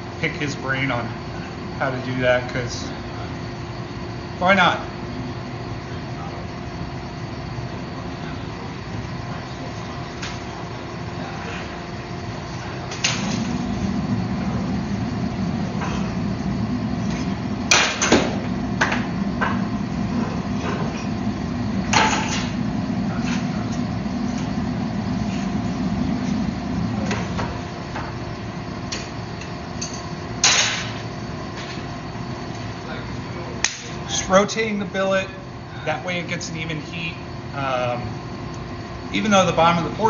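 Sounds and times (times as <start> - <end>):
forge humming: 0.0 - 40.0.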